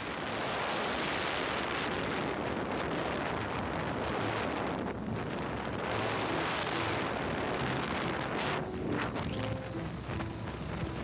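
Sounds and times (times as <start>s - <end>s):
wind buffeting microphone: 0.0s - 11.0s
motorcycle engine running low: 6.0s - 11.0s.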